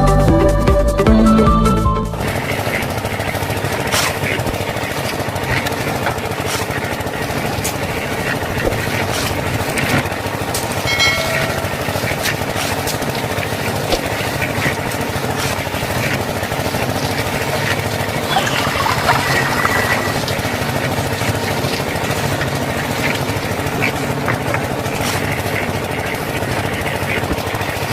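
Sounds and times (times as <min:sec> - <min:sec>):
brief pitched tone: 0:18.2 - 0:20.3.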